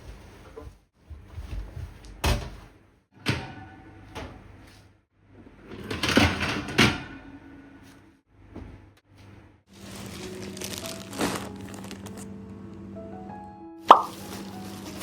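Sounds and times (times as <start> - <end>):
objects clattering: 9.8 - 12.3.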